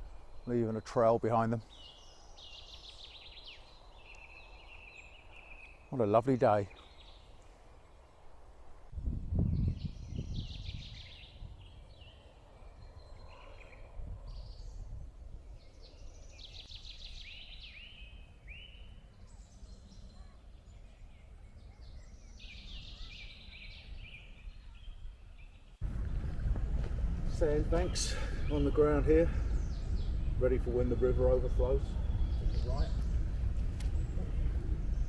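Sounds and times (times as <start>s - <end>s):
small songbirds singing: 0.0s - 8.0s, 9.4s - 35.0s
wind rumble on microphone: 8.8s - 35.0s.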